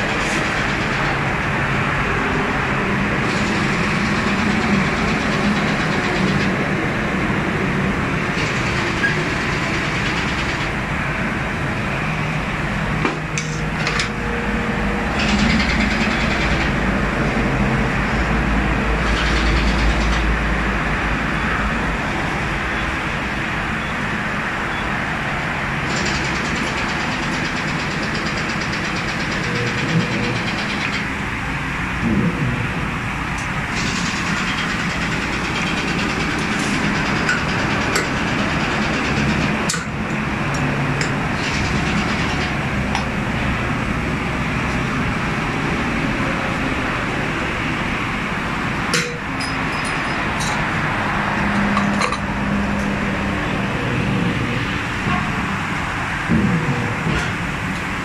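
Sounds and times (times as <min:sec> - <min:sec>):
vehicle engine rumble: 0:31.0 - 0:37.1.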